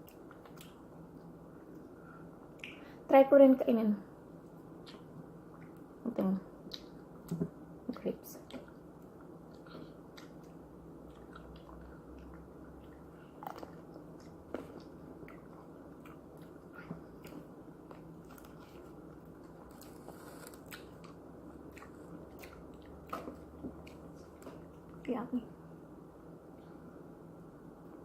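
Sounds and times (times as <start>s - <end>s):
chewing grapes: 0.0s - 2.8s, 4.4s - 5.9s, 8.3s - 25.2s
faint steady hum: 0.0s - 28.0s.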